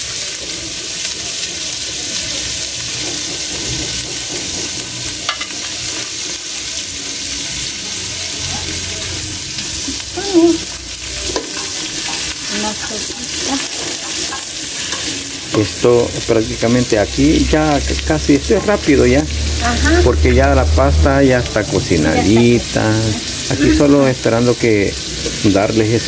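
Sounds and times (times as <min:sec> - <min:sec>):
vegetables sizzling in a pan: 0:00.0 - 0:26.0.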